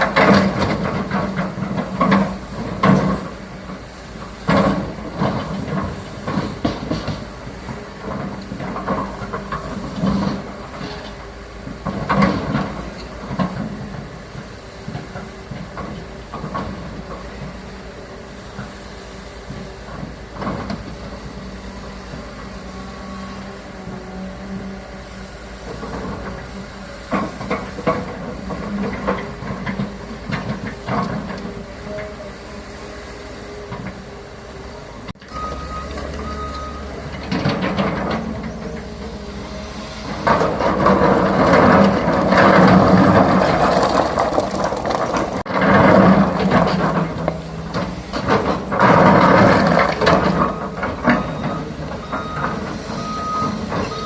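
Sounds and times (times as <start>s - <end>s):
excavator diesel engine running: 0.0s - 54.0s
clanks and knocks: 37.0s - 39.2s, 40.1s - 54.0s
rattling and scraping: 40.0s - 51.2s.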